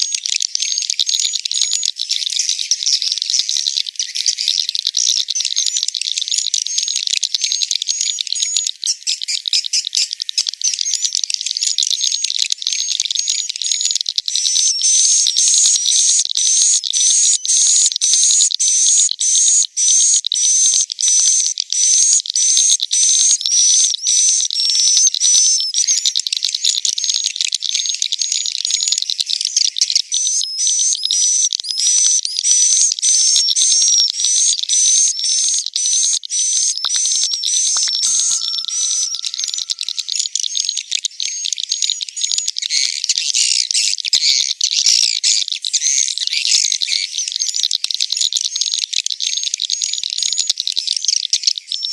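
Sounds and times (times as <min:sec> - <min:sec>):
swiftlets twittering: 0:33.2 - 0:41.4.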